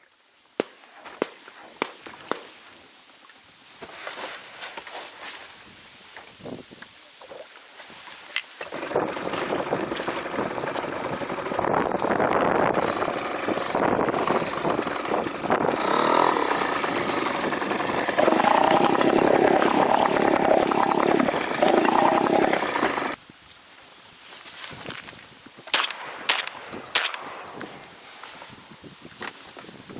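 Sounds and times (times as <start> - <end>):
engine running: 8.7 - 23.2.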